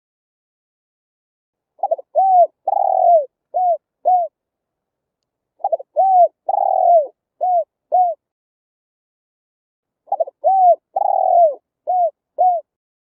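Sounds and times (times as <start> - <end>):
dove cooing: 1.8 - 4.4, 5.6 - 8.2, 10.1 - 12.8.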